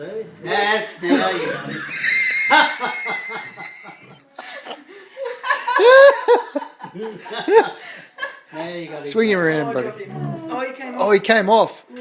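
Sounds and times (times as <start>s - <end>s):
people laughing: 1.1s - 8.5s.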